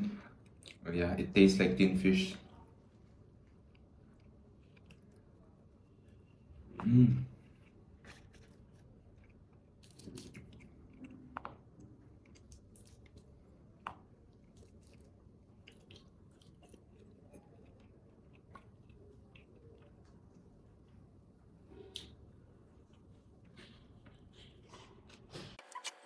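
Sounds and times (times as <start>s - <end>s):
person chewing: 0.3s - 0.8s, 2.6s - 5.8s, 7.0s - 21.0s.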